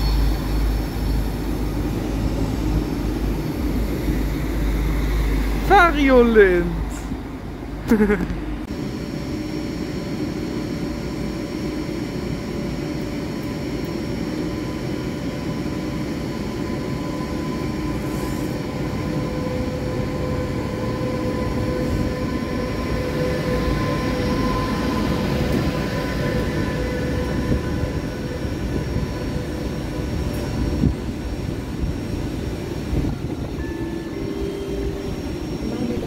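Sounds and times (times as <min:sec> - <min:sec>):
train rumbling: 0:00.0 - 0:36.0
locomotive whining tones: 0:13.4 - 0:36.0.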